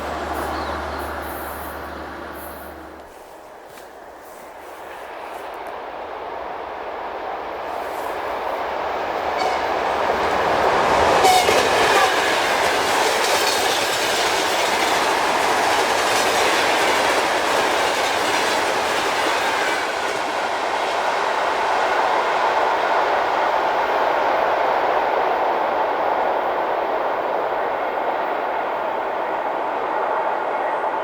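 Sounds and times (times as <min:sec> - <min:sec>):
train wheels on rails: 0:00.0 - 0:31.0
train wheels clickety-clack: 0:07.6 - 0:25.4.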